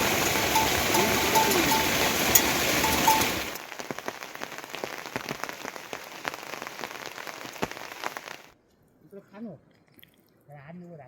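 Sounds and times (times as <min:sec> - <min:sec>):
short high notes: 0:00.0 - 0:03.5
heavy rain: 0:00.0 - 0:08.6
patter of raindrops: 0:00.0 - 0:10.8.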